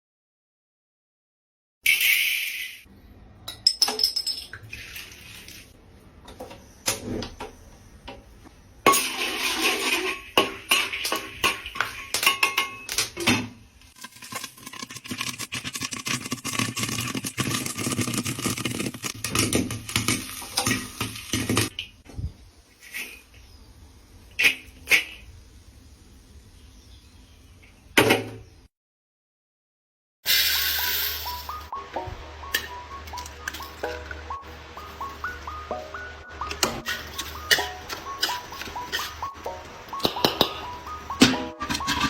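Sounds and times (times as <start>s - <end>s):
metal pot and utensils clattering: 8.9s - 21.8s, 36.5s - 39.4s, 40.0s - 42.0s.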